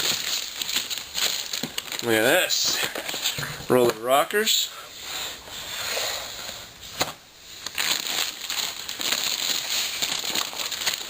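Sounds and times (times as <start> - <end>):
packaging crinkling: 0.0 - 4.0, 7.0 - 11.0.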